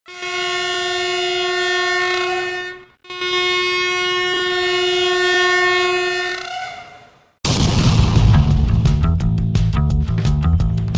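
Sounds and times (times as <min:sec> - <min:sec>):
train horn blasts: 0:00.0 - 0:07.3.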